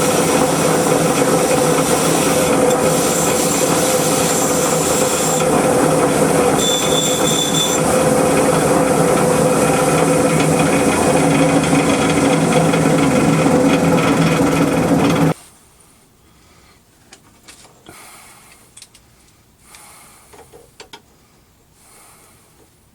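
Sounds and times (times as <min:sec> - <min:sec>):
furnace burner roaring: 0:00.0 - 0:15.4.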